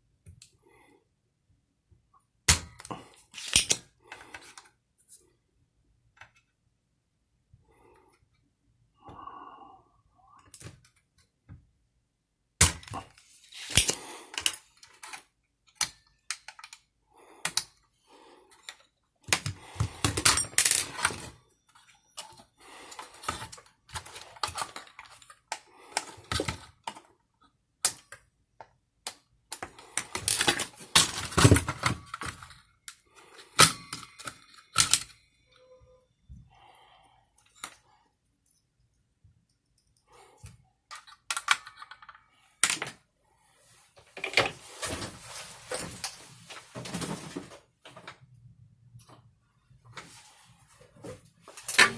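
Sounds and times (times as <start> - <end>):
small parts and tools clattering: 2.5 - 4.7, 12.6 - 17.7, 18.5 - 28.2, 29.5 - 35.8, 39.5 - 43.0, 44.1 - 48.2, 51.1 - 51.9.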